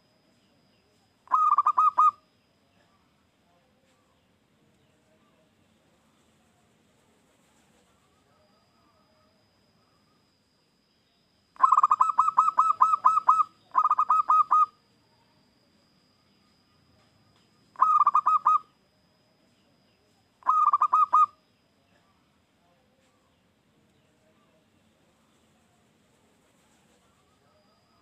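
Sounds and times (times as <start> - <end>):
dove cooing: 1.3 - 2.2, 11.6 - 14.8, 17.8 - 18.7, 20.4 - 21.4.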